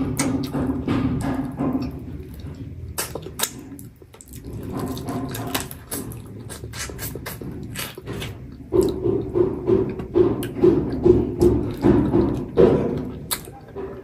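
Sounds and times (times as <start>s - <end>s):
person chewing: 0.0s - 14.0s
lip and tongue smacks: 3.0s - 8.1s, 13.1s - 13.6s.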